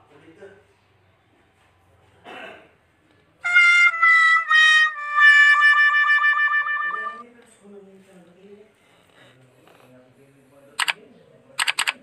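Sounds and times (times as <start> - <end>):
sad trombone sound effect: 3.4 - 7.2.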